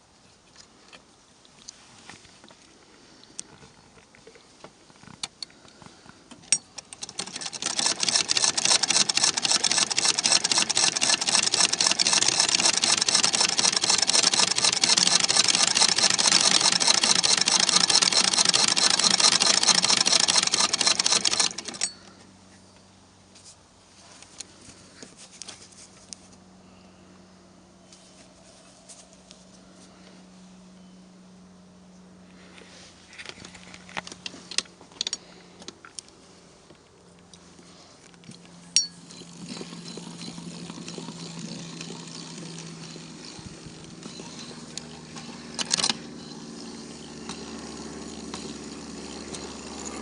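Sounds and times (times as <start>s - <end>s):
sewing machine running: 6.9s - 21.8s, 39.3s - 50.0s.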